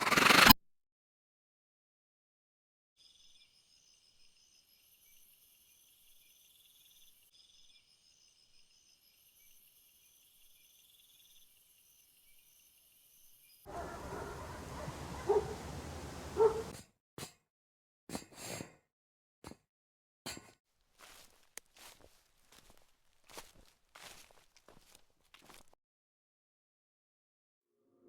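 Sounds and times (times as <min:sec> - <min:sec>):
short animal calls: 0:13.7 - 0:16.7.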